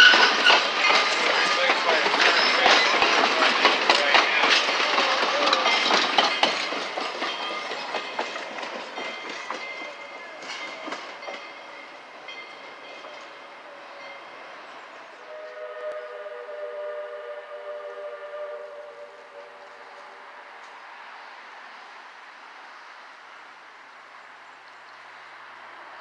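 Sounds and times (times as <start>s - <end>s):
train wheels clicking over rail joints: 0.0s - 13.4s
distant train horn chord: 15.2s - 20.5s.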